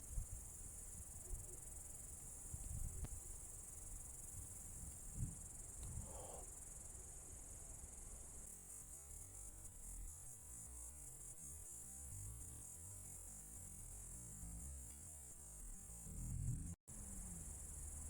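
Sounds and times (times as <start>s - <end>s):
night insects chirring: 0.0s - 18.0s
faint low rumble: 15.6s - 18.0s.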